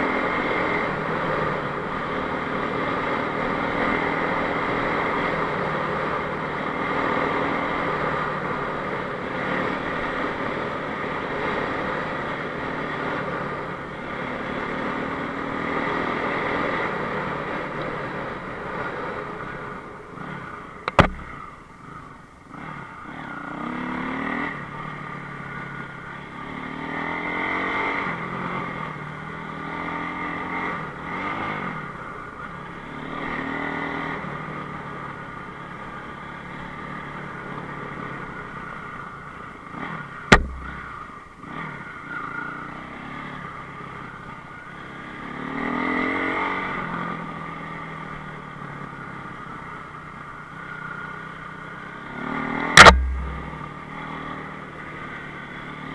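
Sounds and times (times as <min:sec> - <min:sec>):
motorcycle engine revving: 0:20.8 - 0:21.5, 0:39.7 - 0:41.9, 0:51.8 - 0:55.0
sharp knock: 0:20.9 - 0:21.4, 0:40.3 - 0:41.0, 0:52.8 - 0:53.8.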